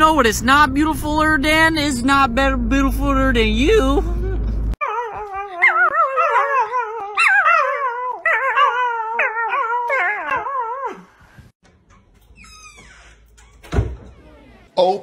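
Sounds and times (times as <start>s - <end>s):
puppy howling: 4.8s - 11.1s.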